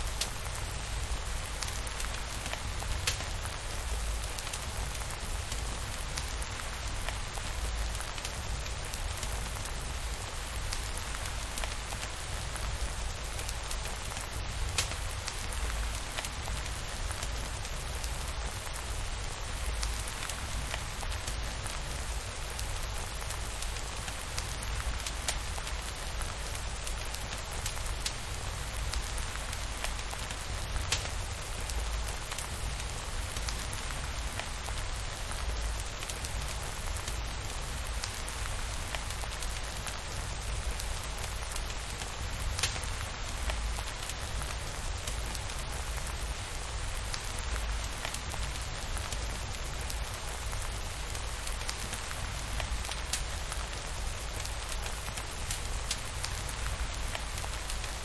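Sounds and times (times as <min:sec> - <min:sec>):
steady rain hissing: 0:00.0 - 0:58.0.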